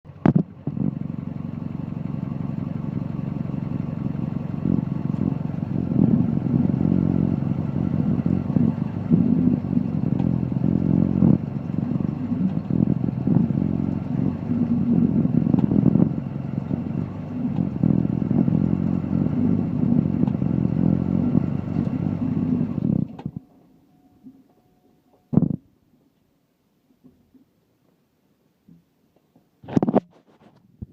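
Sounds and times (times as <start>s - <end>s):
diesel engine running: 0.0s - 23.7s.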